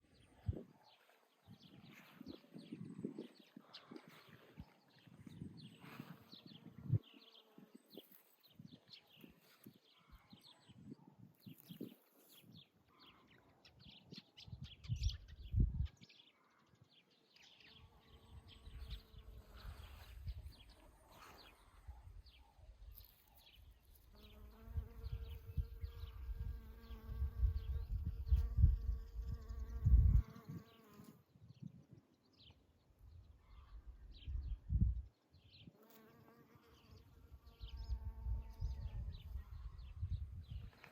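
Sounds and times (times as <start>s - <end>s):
small birds chirping: 0.0s - 40.9s
flying insect buzzing: 24.1s - 31.2s, 35.8s - 39.7s.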